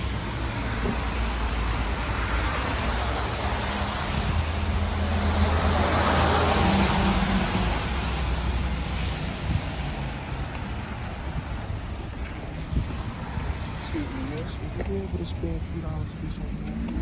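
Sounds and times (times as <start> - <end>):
street traffic noise: 0.0 - 17.0
motor vehicle passing close by: 0.8 - 9.8.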